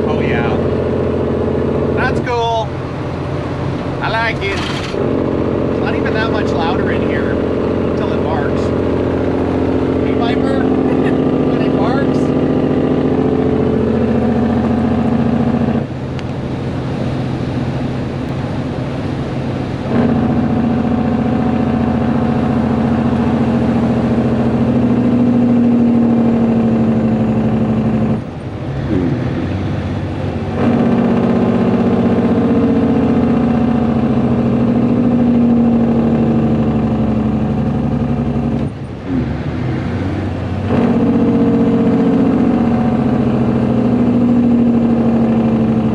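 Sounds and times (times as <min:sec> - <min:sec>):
diesel truck engine under load: 0:00.0 - 0:45.9.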